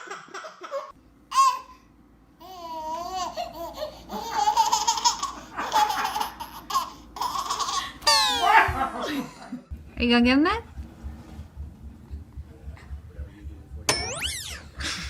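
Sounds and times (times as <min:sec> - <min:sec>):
baby laughing and squealing: 0:03.0 - 0:08.6.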